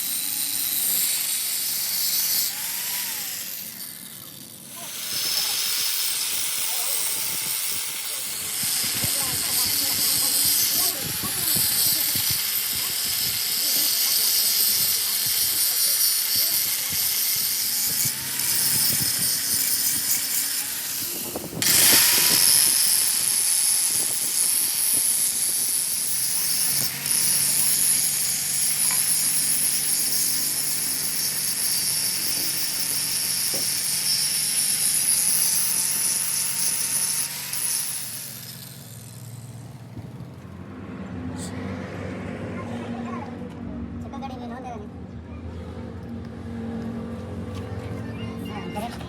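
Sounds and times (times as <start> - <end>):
machine hissing on metal: 4.5 - 39.1.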